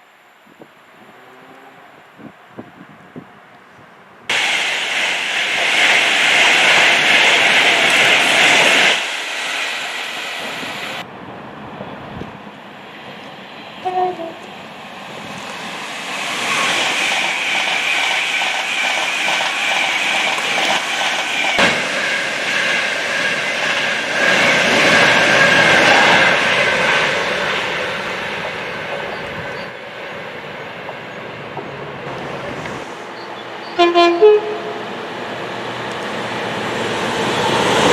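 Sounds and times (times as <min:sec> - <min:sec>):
train wheels on rails: 0:03.2 - 0:37.9
train horn toot: 0:13.8 - 0:14.5, 0:33.7 - 0:34.9.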